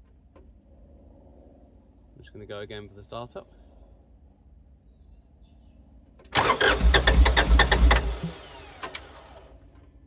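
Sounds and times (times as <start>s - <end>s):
diesel engine cranking: 6.3s - 9.5s.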